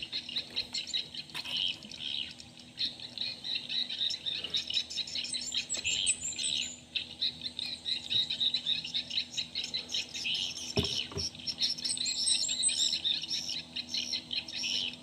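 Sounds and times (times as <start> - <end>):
birds chirping: 0.0 - 15.0
dull knocks: 10.8 - 11.3.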